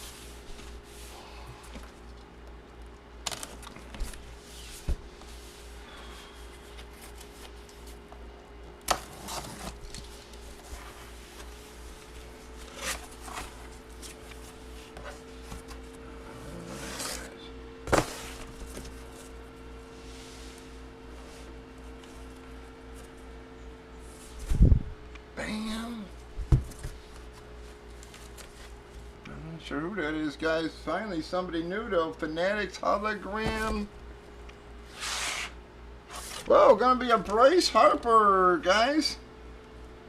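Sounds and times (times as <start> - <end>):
faint electrical hum: 0.0 - 40.0
packaging rustling and scraping: 3.3 - 8.1, 8.9 - 19.4.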